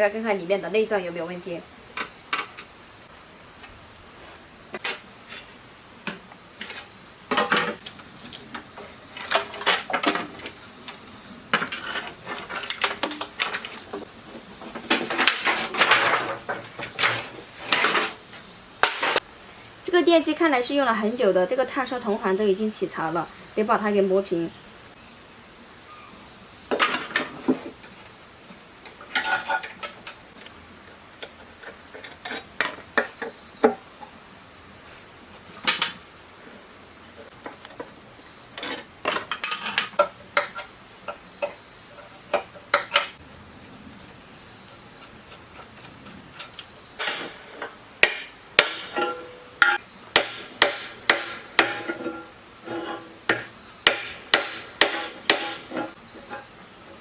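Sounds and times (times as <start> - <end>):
high insect drone: 0.0 - 57.0
hammer blows: 47.0 - 56.0.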